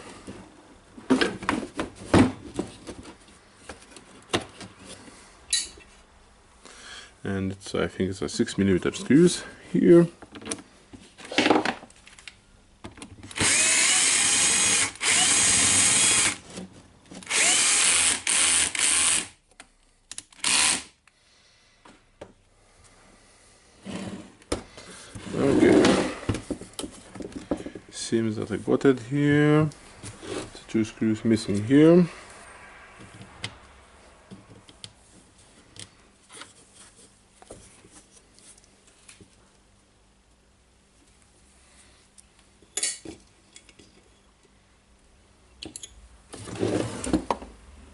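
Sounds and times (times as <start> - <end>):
power drill driving screws: 13.3 - 16.4, 17.2 - 19.4, 20.4 - 20.9.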